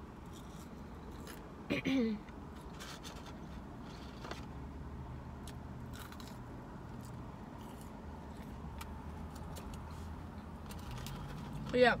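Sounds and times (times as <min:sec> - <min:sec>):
person chewing fries: 0:00.0 - 0:01.6, 0:05.4 - 0:11.6
low steady hum: 0:00.0 - 0:12.0.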